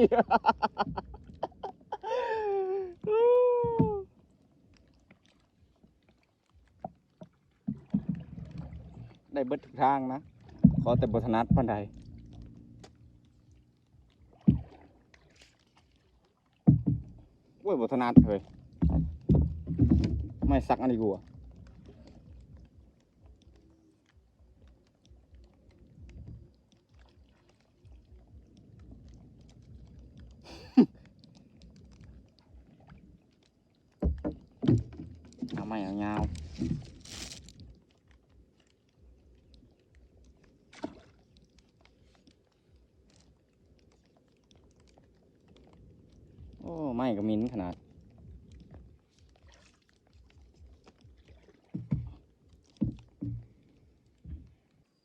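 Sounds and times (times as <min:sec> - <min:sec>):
faint water noise: 0:00.0 - 0:55.0
paddle splashes: 0:00.0 - 0:55.0
rustling and knocking of net handling: 0:18.1 - 0:21.0, 0:34.0 - 0:37.7, 0:51.6 - 0:53.6.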